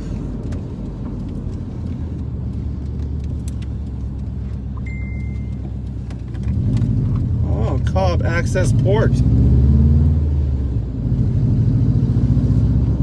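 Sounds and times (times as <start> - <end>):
car engine running steadily: 0.0 - 13.0
short high beep: 4.8 - 5.6.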